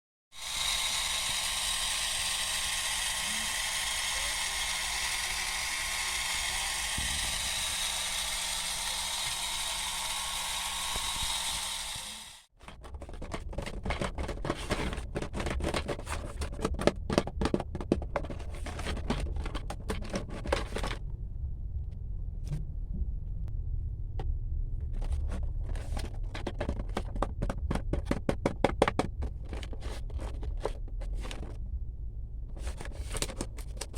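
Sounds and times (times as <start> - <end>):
vacuum cleaner motor whirring: 0.4 - 12.5
low rumble: 21.0 - 26.3, 31.4 - 32.7.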